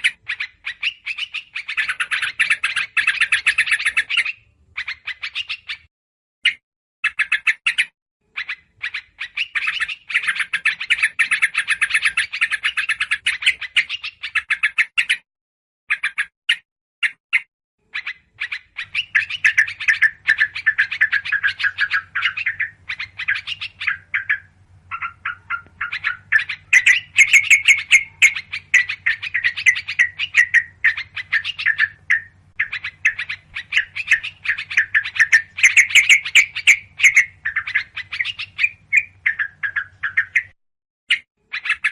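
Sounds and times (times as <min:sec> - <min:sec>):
bulbuls chattering: 0:18.0 - 0:40.6.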